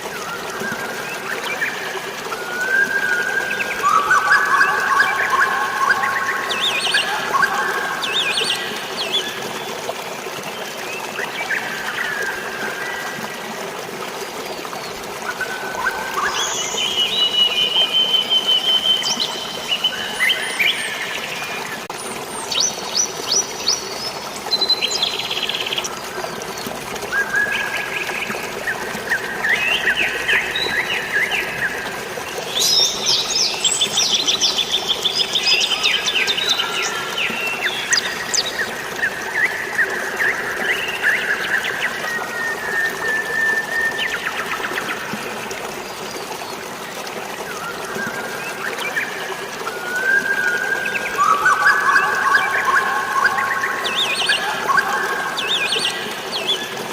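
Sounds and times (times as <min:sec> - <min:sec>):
rain and falling water: 0:00.0 - 0:56.9
birds chirping and trilling: 0:50.8 - 0:56.7.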